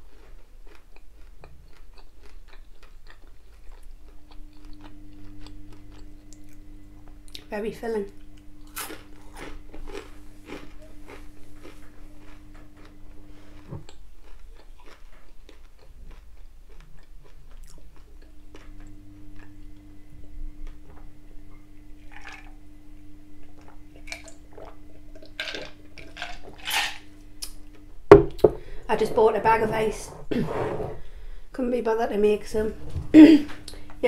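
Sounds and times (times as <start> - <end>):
chewing and wet mouth sounds: 0.0 - 6.6, 8.2 - 19.7, 23.6 - 27.8
food crunching: 0.0 - 7.5, 8.2 - 19.8, 23.6 - 29.0.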